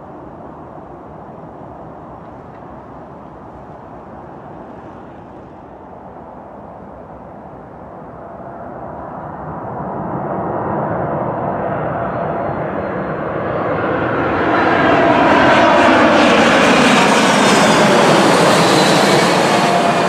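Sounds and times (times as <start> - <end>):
jet engine rushing: 9.4 - 20.0.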